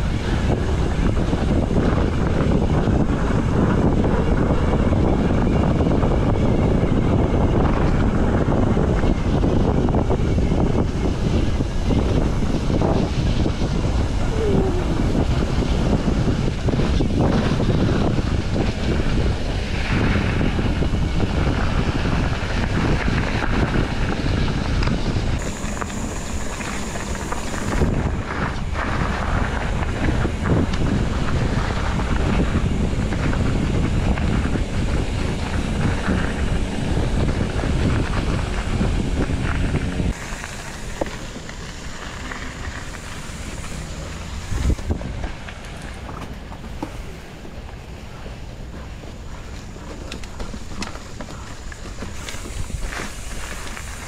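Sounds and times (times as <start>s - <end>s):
wind buffeting microphone: 0.0s - 54.0s
bike rattling and knocking: 15.1s - 54.0s.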